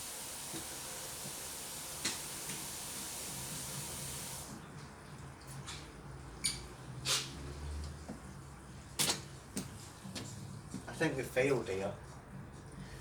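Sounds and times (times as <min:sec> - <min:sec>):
water rushing in washing machine: 0:00.0 - 0:04.6.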